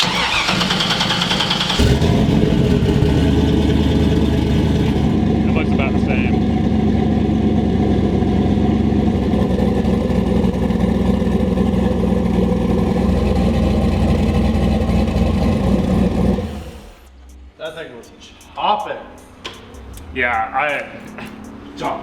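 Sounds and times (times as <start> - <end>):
loud choppy engine idle: 0.0 - 17.1.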